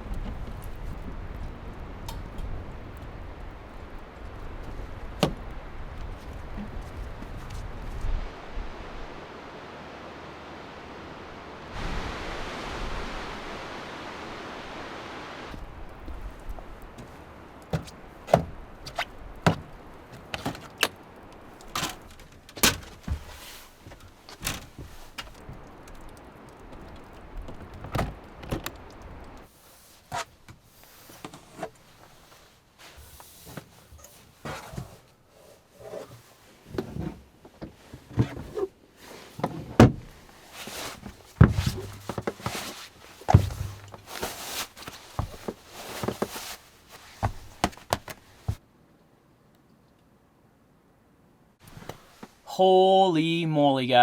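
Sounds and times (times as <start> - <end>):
wind noise: 0.0 - 21.6.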